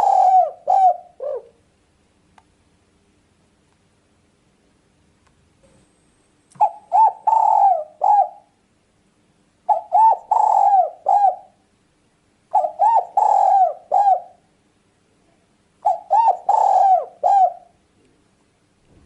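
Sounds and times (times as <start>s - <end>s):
dove cooing: 0.0s - 1.6s, 6.6s - 8.6s, 9.7s - 11.6s, 12.5s - 14.4s, 15.8s - 17.8s.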